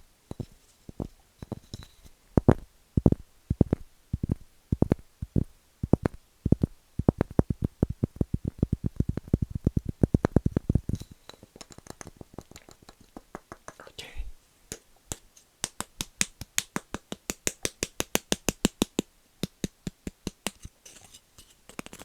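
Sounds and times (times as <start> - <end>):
tapping on wood: 2.4 - 13.9, 14.7 - 20.7.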